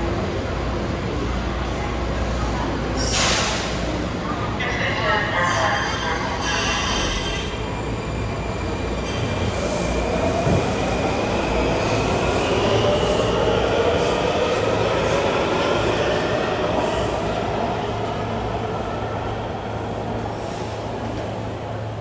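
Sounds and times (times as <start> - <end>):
train whine and wheel squeal: 0.1 - 22.0
train wheels on rails: 6.2 - 22.0.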